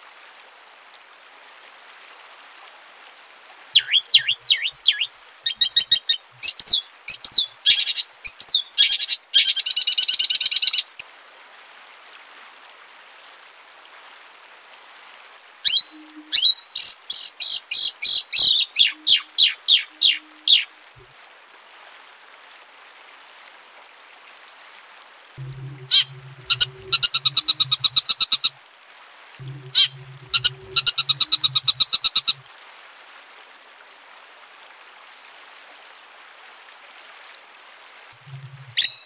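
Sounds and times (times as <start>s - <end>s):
faint steady hiss: 0.0s - 39.0s
songbird singing: 3.8s - 11.0s, 15.6s - 21.0s, 25.4s - 28.5s, 29.4s - 32.4s, 38.2s - 39.0s.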